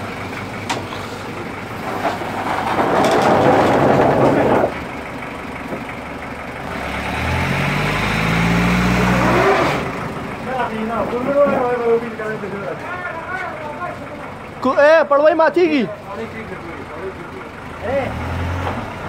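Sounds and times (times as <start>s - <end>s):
car engine revving: 6.6s - 10.2s.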